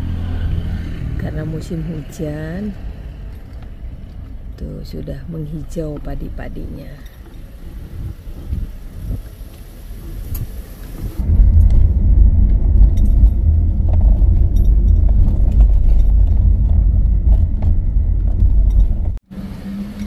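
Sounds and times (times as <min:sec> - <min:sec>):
gusting wind buffeting microphone: 0:05.6 - 0:19.2.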